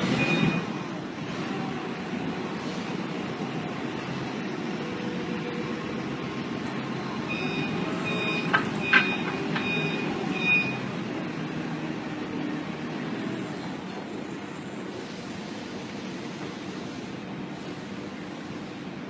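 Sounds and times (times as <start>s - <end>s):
reversing alarm beeping: 0.0s - 0.7s, 7.3s - 10.9s
heavy machine engine running: 0.0s - 19.0s.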